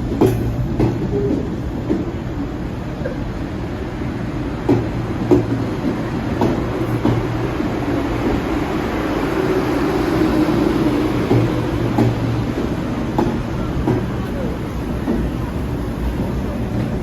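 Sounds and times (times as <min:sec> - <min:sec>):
train wheels clicking over rail joints: 0:00.0 - 0:02.2, 0:04.6 - 0:08.5, 0:10.8 - 0:17.0
train rumbling past: 0:00.0 - 0:17.0.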